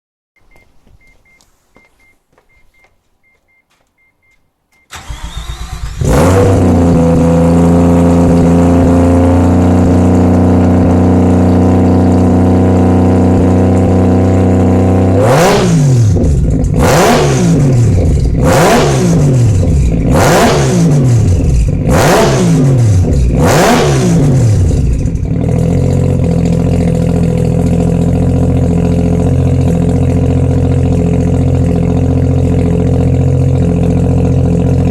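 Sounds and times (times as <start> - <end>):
faint rapid beeping: 0.4 - 4.9
rotary engine revving and idling: 4.9 - 34.9.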